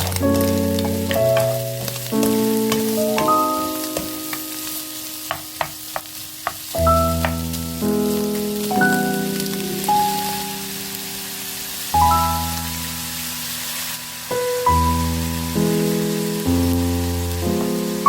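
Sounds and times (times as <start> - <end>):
background music of held chords: 0.0 - 5.9, 6.7 - 13.4
meat sizzling in a pan: 0.0 - 18.0.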